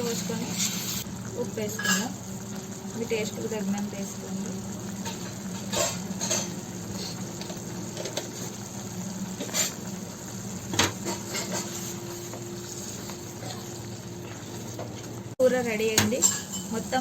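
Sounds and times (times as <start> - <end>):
spoon scraping cooking pan: 9.3 - 9.9, 10.9 - 13.2, 16.1 - 16.9.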